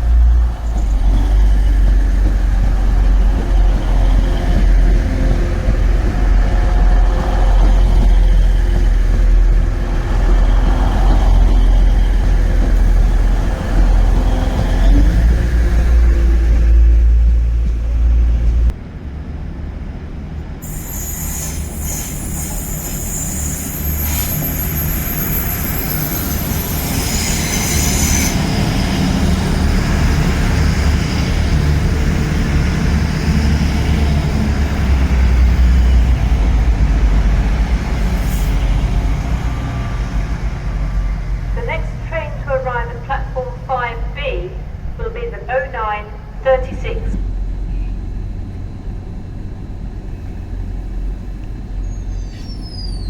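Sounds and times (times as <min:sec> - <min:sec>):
train rumbling: 0:00.0 - 0:53.0
train wheel squeal: 0:20.6 - 0:31.4, 0:38.0 - 0:40.0, 0:51.7 - 0:53.0.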